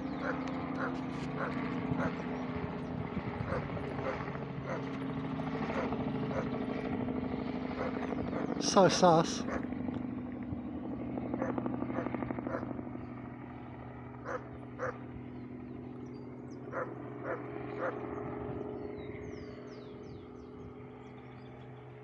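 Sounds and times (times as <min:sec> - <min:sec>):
helicopter rotor chop and hum: 0:00.0 - 0:22.0.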